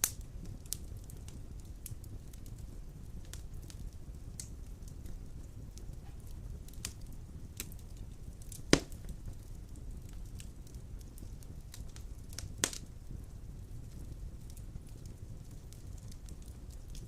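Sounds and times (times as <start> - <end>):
logs burning with crackles: 0.0 - 17.0
loud sharp pop of fire: 8.5 - 9.4, 11.2 - 12.9.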